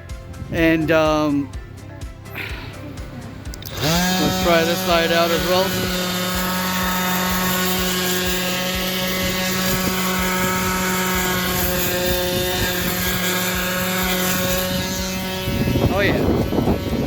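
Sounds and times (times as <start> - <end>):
orbital sander motor hum: 3.5 - 17.0.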